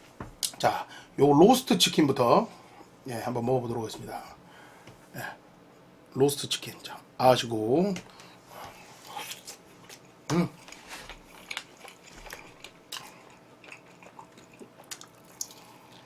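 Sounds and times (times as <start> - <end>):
chewing with crunches: 9.0 - 16.0.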